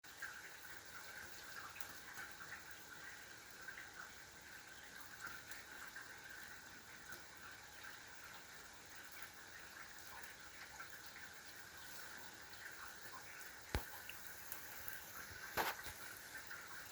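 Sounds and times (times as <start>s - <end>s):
faint light rain: 0.0s - 16.9s
raindrops ticking: 7.0s - 16.9s.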